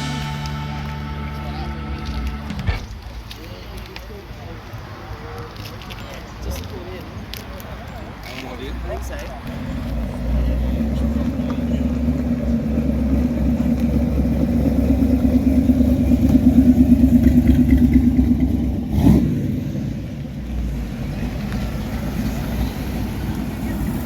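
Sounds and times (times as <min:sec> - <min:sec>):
car engine running: 0:09.5 - 0:24.0.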